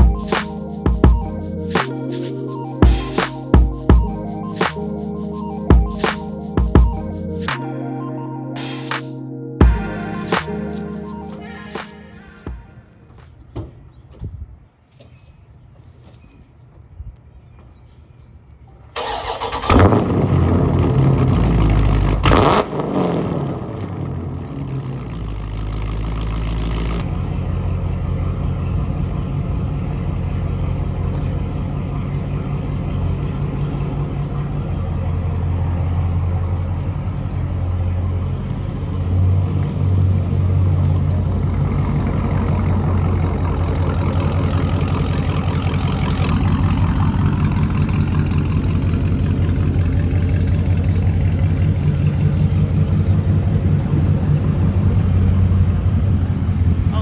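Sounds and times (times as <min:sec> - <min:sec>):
car engine starting with bark: 0:19.0 - 0:25.5, 0:40.5 - 0:57.0
loud engine idling: 0:40.8 - 0:57.0.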